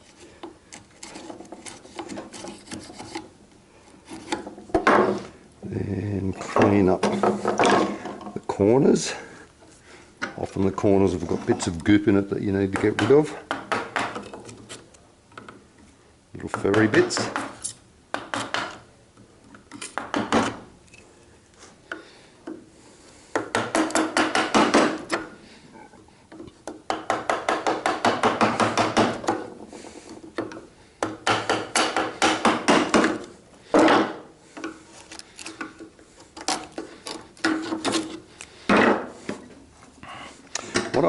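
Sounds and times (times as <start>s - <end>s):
chisel scraping wood: 0.0s - 3.3s, 4.0s - 5.3s, 31.2s - 39.6s.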